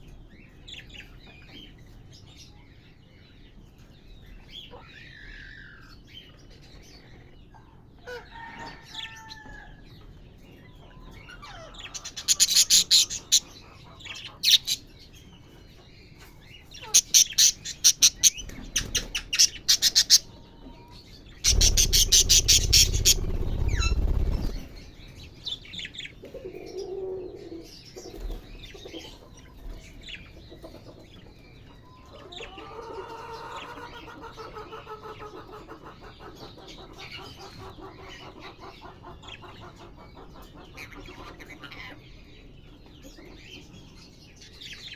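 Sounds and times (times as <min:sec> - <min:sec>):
parrots chirping and calling: 0:11.4 - 0:14.9, 0:16.8 - 0:20.4, 0:21.4 - 0:24.8
rapid wing flapping: 0:21.4 - 0:25.0
low rumble: 0:21.5 - 0:25.1.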